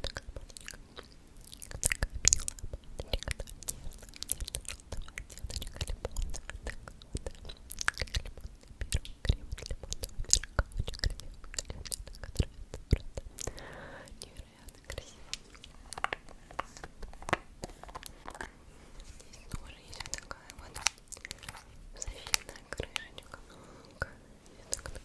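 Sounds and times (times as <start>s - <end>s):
mouth clicks and smacks: 0.0s - 25.0s.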